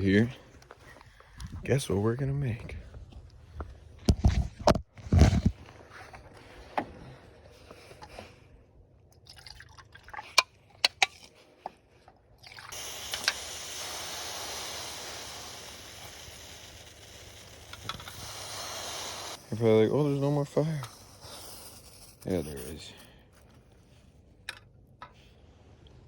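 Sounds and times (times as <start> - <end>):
water pouring: 9.2 - 10.4.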